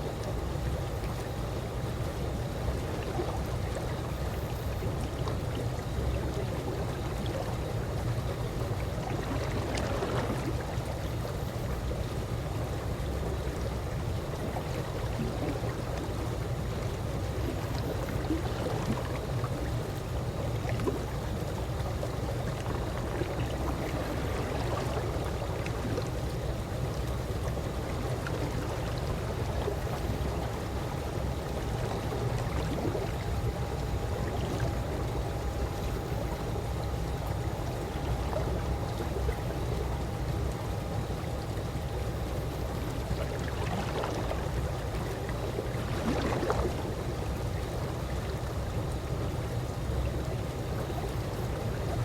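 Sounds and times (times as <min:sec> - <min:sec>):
pool water washing and splashing: 0:00.0 - 0:52.0.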